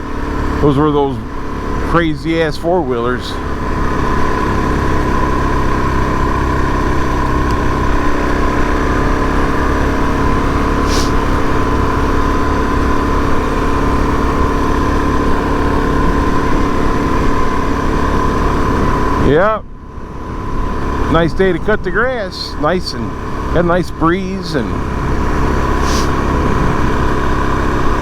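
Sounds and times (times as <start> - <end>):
motorcycle engine running: 0.0 - 28.0
brief hiss: 10.8 - 11.2, 25.8 - 26.2
wind rushing over microphone: 24.7 - 28.0.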